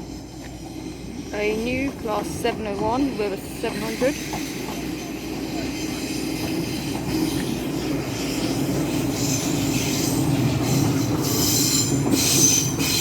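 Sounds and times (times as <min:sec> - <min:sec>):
train running rumble: 0:00.0 - 0:13.0
high-pitched wheel squeal: 0:03.8 - 0:13.0.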